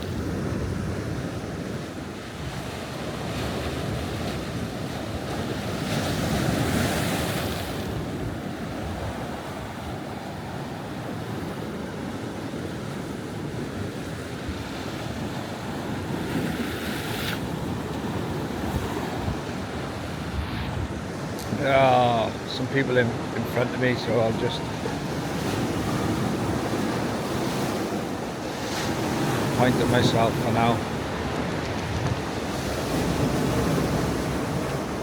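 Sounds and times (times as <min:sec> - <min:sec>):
sea waves breaking: 0:00.0 - 0:35.0
wind on microphone: 0:15.0 - 0:21.6, 0:24.6 - 0:35.0.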